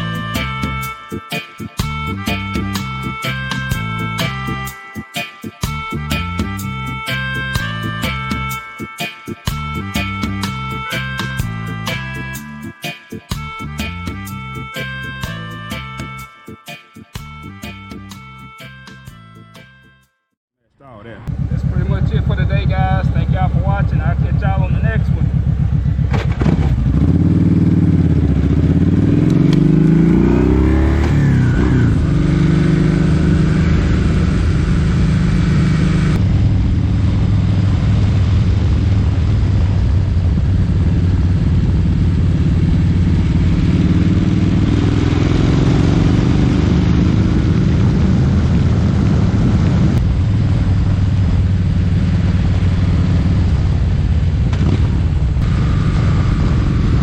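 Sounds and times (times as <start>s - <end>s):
wind and road noise: 20.8s - 57.0s
motorcycle engine running: 21.2s - 57.0s.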